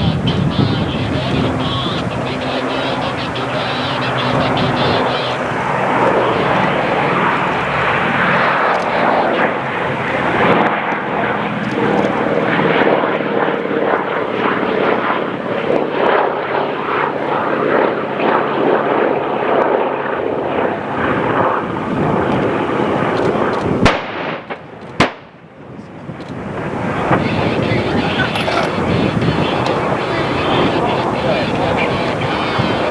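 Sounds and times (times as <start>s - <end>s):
propeller planes droning past: 0.0s - 32.9s
sharp crack: 23.8s - 25.4s.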